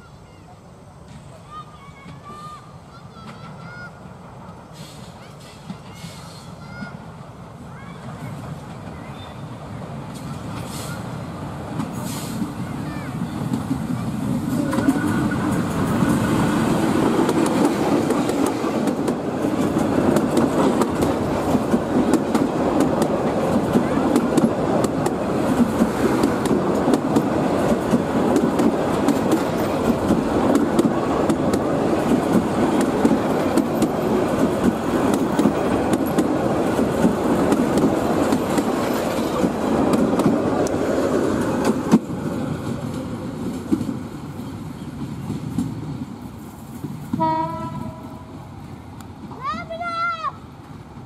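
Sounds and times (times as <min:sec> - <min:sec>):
train coaches rolling past: 0:00.0 - 0:51.0
wheels clattering over rail joints: 0:08.0 - 0:46.0
train horn note: 0:47.1 - 0:48.4.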